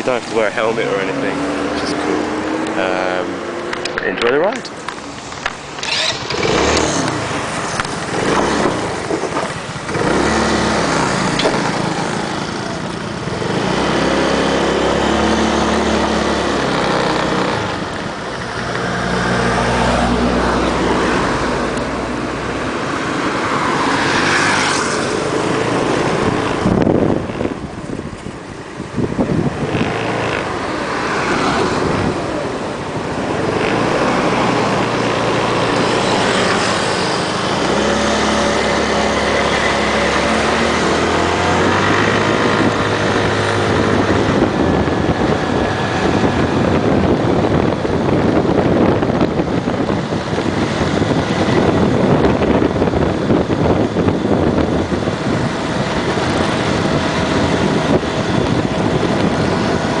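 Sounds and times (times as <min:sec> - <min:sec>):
wind and road noise: 0:00.0 - 1:00.0
small motorbike engine running: 0:05.8 - 0:07.3.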